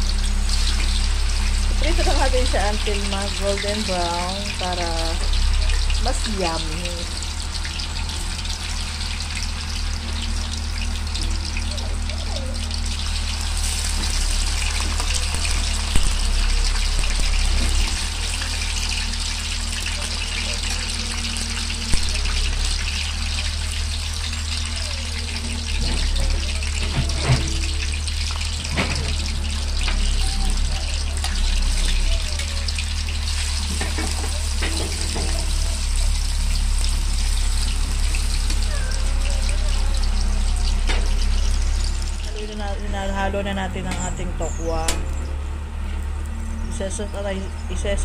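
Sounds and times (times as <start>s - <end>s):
tofu deep-frying in oil: 0.0s - 45.3s
low steady hum: 0.0s - 48.0s.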